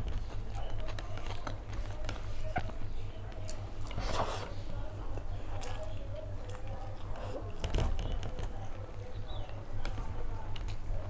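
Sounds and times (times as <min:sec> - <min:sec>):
low steady hum: 0:00.0 - 0:11.0
wet chewing and mouth smacks: 0:05.1 - 0:08.5.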